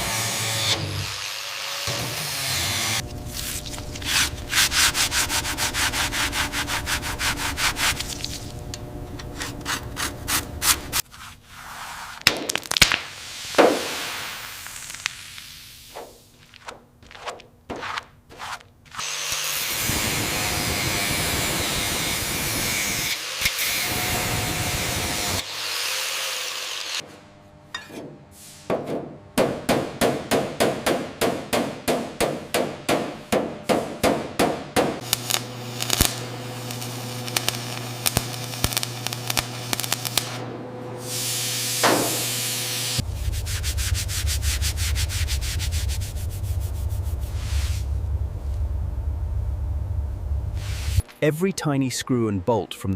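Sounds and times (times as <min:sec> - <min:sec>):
steady machine hum: 0:03.0 - 0:11.0, 0:35.0 - 0:51.1.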